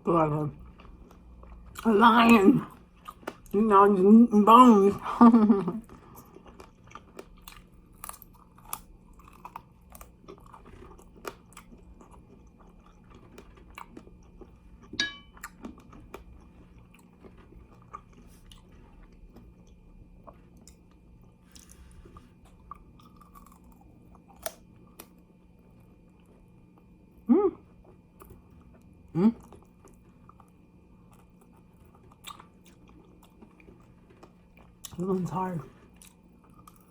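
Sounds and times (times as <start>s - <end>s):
crunching chicken wings: 5.8s - 14.6s.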